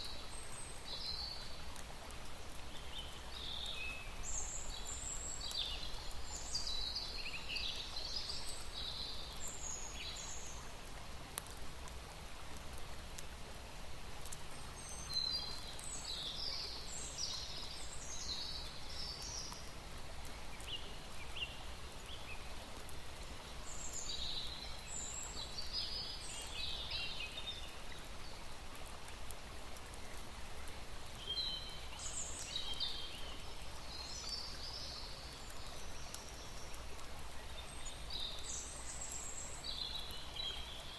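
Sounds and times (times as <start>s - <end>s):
outdoor background hiss: 0.0s - 40.9s
songbird chirping: 30.0s - 40.9s.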